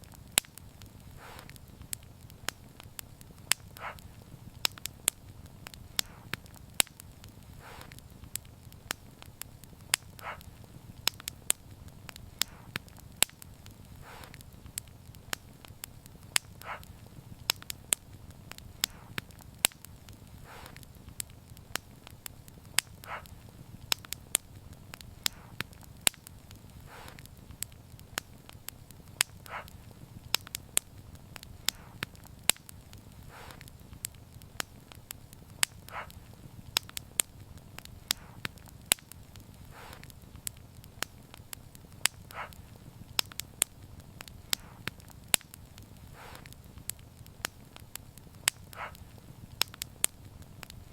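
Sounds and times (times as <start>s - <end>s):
wood fire crackling and popping: 0.0s - 50.9s
soft puff: 1.1s - 1.6s, 6.0s - 6.3s, 7.5s - 8.0s, 12.4s - 12.8s, 14.0s - 14.4s, 18.8s - 19.1s, 20.4s - 20.8s, 25.2s - 25.6s, 26.8s - 27.3s, 33.3s - 33.7s, 39.7s - 40.1s, 46.1s - 46.5s.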